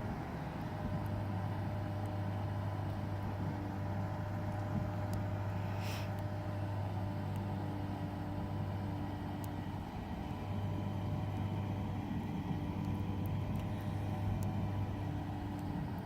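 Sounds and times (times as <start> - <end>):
low mechanical hum: 0.0 - 16.0
brief hiss: 5.6 - 6.2.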